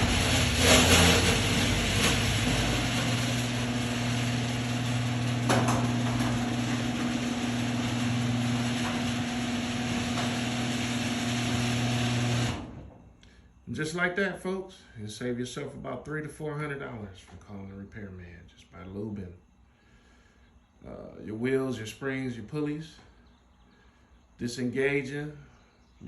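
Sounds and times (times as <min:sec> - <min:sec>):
garage door opener click: 0:00.0 - 0:12.9
garage door opener motor hum: 0:00.0 - 0:13.1.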